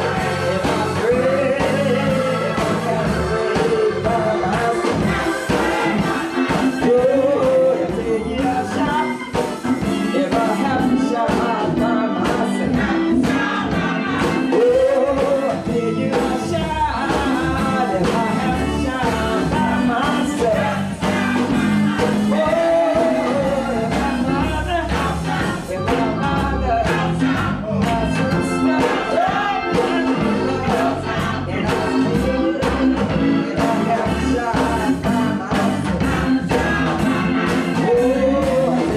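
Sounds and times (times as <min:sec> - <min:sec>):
gospel choir singing: 0:00.0 - 0:38.9
instrumental beat and bass: 0:00.0 - 0:38.9.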